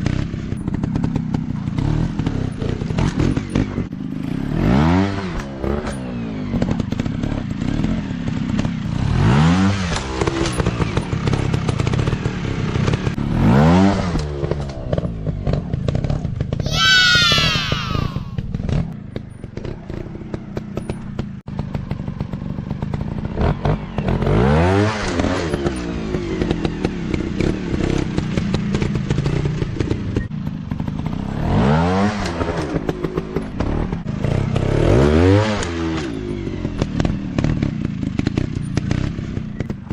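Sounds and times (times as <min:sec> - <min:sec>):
dirt bike engines revving: 0:16.0 - 0:18.9.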